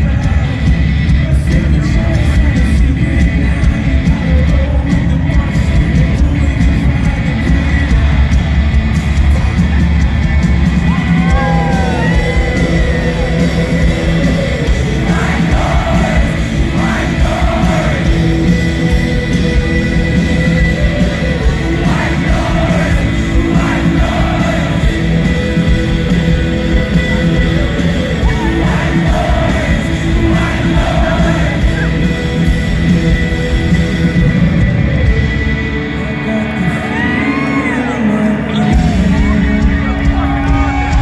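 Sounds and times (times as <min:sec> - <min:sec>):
live rock band playing: 0:00.0 - 0:41.0
crowd yelling: 0:03.4 - 0:41.0
person singing: 0:10.9 - 0:32.5, 0:35.1 - 0:41.0.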